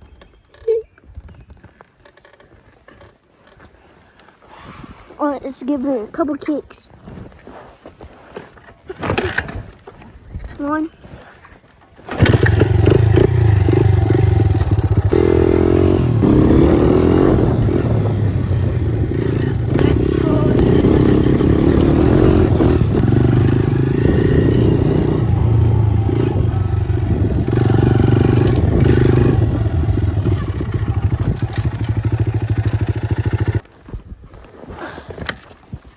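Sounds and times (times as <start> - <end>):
motorcycle kick-start: 9.0 - 9.8, 12.0 - 15.2, 17.3 - 33.7
motorcycle engine revving: 12.1 - 33.7.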